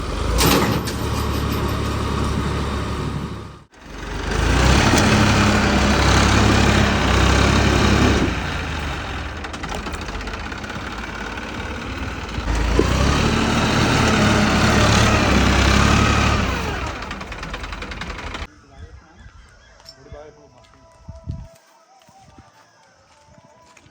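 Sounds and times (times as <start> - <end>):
tractor diesel engine under load: 0.0 - 18.5.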